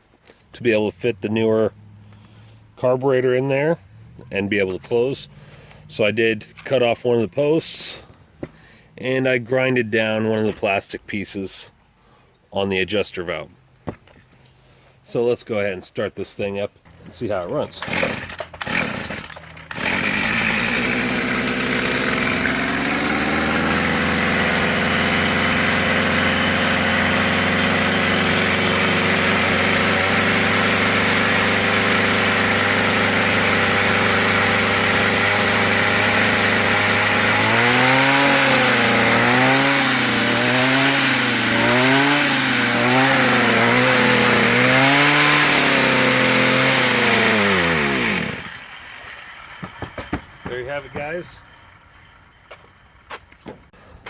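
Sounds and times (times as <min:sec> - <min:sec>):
string trimmer engine revving: 0:03.8 - 0:07.0, 0:16.9 - 0:53.1.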